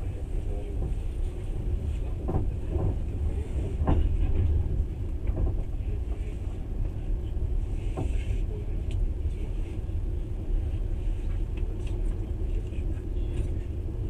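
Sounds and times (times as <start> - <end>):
train rumbling on track: 0.0 - 14.0.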